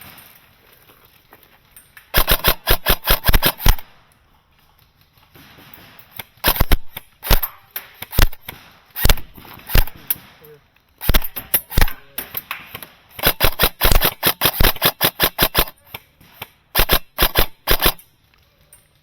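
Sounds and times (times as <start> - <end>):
airsoft gun shots: 2.2 - 3.8, 5.4 - 10.4, 11.0 - 18.0.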